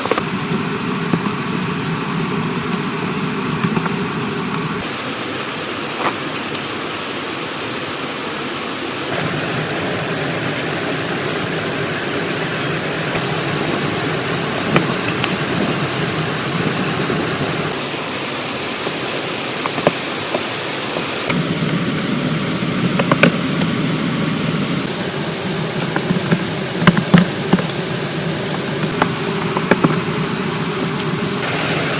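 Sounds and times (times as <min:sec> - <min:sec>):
hiss of running water: 0:00.0 - 0:31.9.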